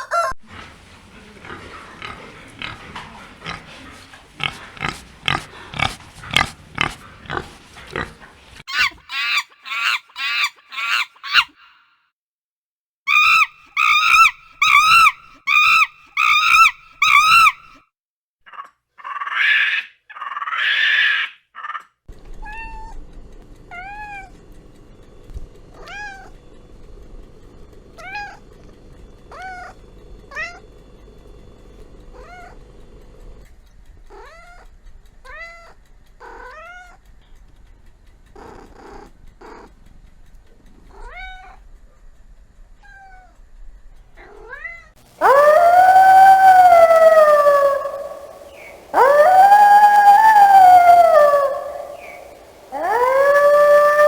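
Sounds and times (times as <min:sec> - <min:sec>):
cat harsh cries: 0:13.1 - 0:17.7, 0:19.0 - 0:21.8, 0:44.4 - 0:54.0
cat howling: 0:13.1 - 0:17.7, 0:25.8 - 0:26.3, 0:45.2 - 0:54.0
faint steady hum: 0:45.0 - 0:54.0.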